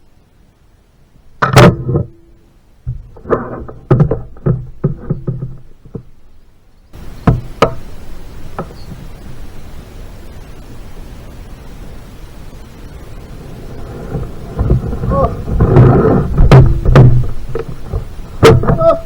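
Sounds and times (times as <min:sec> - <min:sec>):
steady rushing noise: 0:00.0 - 0:18.8
knocks: 0:07.2 - 0:07.8, 0:14.1 - 0:19.0.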